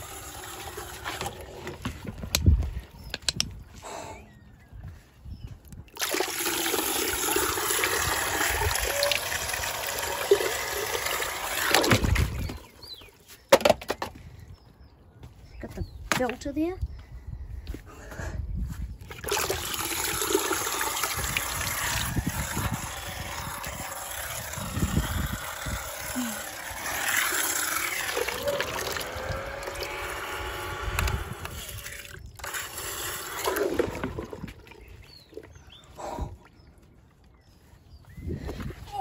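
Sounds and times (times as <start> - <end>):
water running and splashing: 6.0 - 12.6, 19.1 - 30.2.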